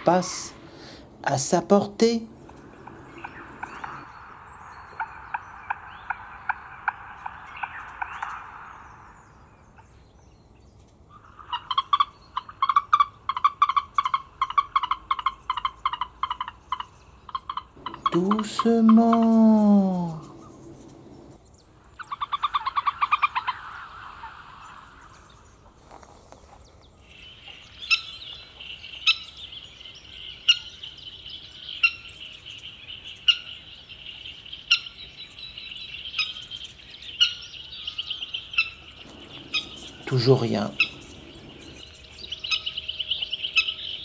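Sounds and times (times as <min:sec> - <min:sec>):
bird trilling: 0:02.2 - 0:10.2, 0:11.1 - 0:25.7, 0:34.6 - 0:44.0
sharp bird call notes: 0:17.4 - 0:21.4, 0:37.2 - 0:44.0.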